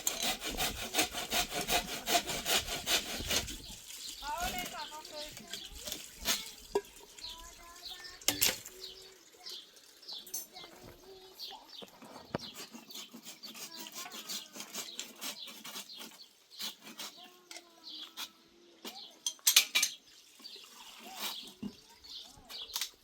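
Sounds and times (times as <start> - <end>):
small birds chirping: 3.0 - 23.0
hard objects clinking together: 18.9 - 20.0.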